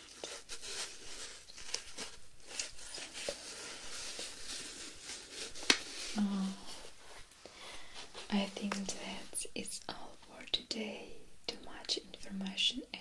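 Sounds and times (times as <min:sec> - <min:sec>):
faint rustling hiss: 0:00.0 - 0:13.0.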